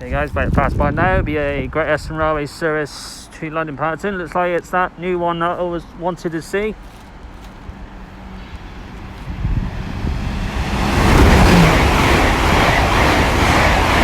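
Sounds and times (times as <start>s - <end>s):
passenger train passing: 4.9s - 14.0s.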